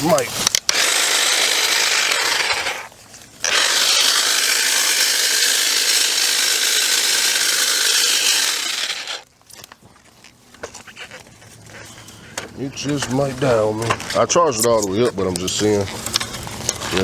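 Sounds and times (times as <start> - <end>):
battery saw cutting branches: 0.0 - 9.3.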